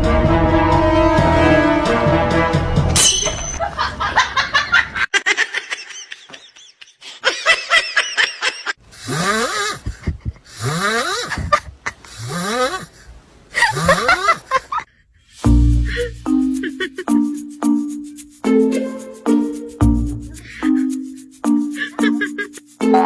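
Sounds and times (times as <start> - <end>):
person laughing: 9.6 - 14.9, 15.8 - 17.2, 21.7 - 23.0.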